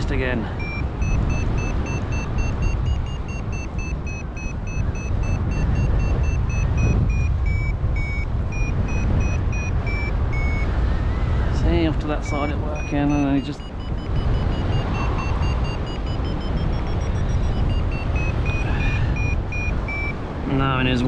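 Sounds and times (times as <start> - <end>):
variometer beeping: 0.0 - 21.0
wind rumble on microphone: 0.0 - 21.0.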